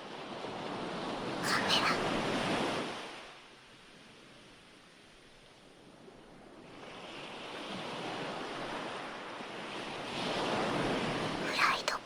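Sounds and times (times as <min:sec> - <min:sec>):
ocean wave washing in: 0:06.6 - 0:11.6.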